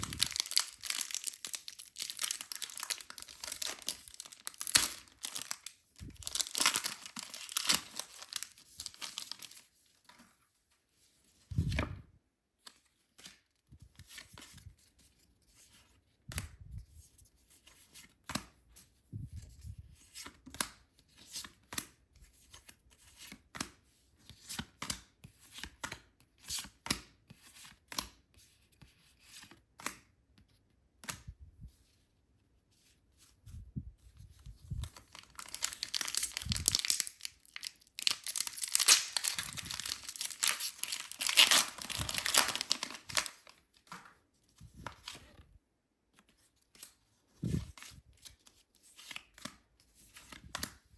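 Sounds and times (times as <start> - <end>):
packaging tearing and crinkling: 0.0 - 9.6, 35.1 - 43.5.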